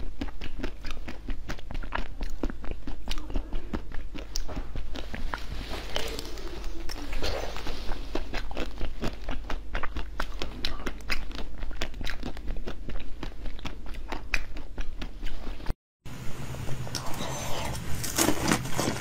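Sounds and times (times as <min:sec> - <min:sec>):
crunchy chewing of frozen treat: 0:00.0 - 0:15.7, 0:16.8 - 0:19.0.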